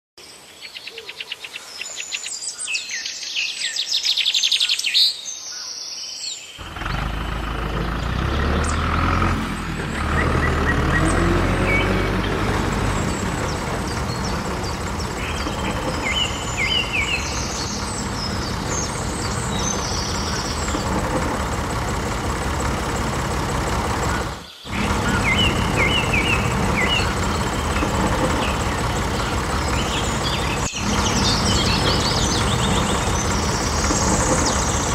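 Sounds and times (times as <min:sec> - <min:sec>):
birds chirping: 0:00.4 - 0:34.9
motor rumbling: 0:06.6 - 0:34.9.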